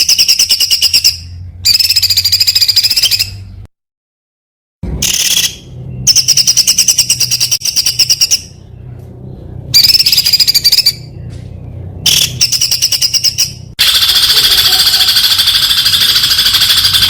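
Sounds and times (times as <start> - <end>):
songbird singing rapid trills: 0.0 - 3.5.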